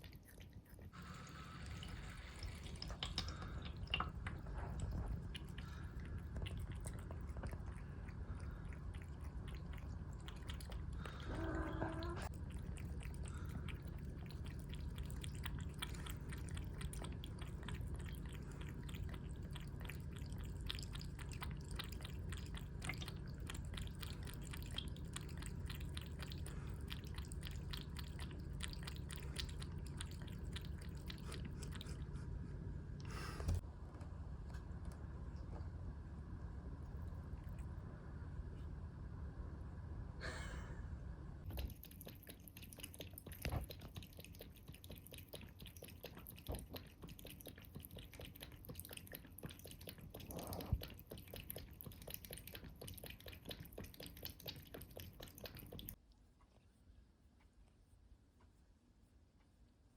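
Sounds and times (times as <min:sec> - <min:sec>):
cat lapping water: 0:00.0 - 0:32.4, 0:36.8 - 0:37.8, 0:41.4 - 0:56.0
cat meowing: 0:11.2 - 0:12.3.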